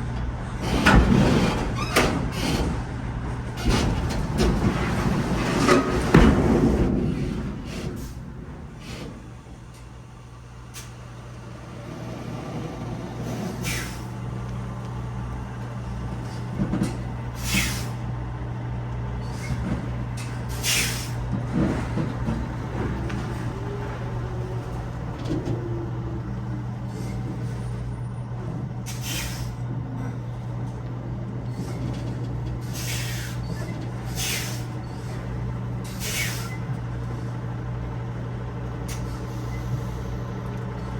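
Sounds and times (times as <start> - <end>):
diesel truck engine idling: 6.0 - 40.9
air brake hisses: 10.7 - 14.3, 17.4 - 18.0, 20.2 - 21.2, 28.9 - 29.6, 32.6 - 35.2, 35.8 - 37.3, 38.9 - 40.3.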